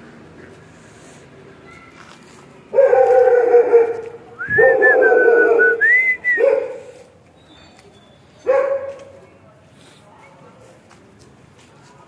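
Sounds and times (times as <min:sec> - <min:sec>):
dogs yelping whines: 0:02.8 - 0:06.9.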